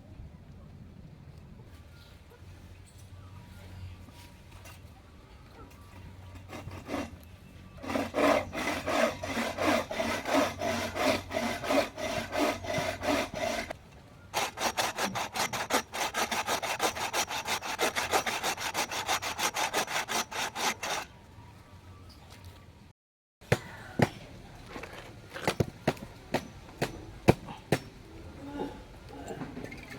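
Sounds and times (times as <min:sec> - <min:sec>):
hand saw cutting wood: 0:06.4 - 0:07.2, 0:07.8 - 0:21.1.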